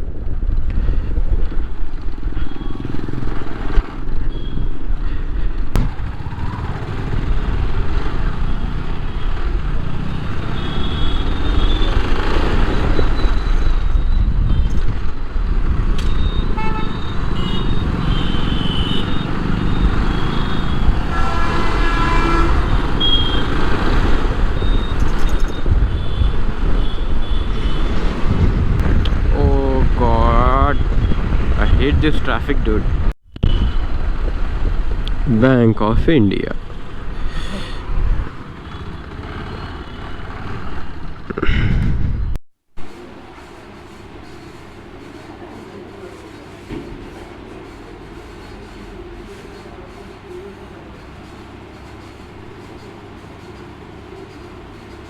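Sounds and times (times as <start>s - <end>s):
motorcycle engine and wind rumble: 0.0s - 45.8s
vehicle horns honking: 8.3s - 12.2s, 16.2s - 28.2s.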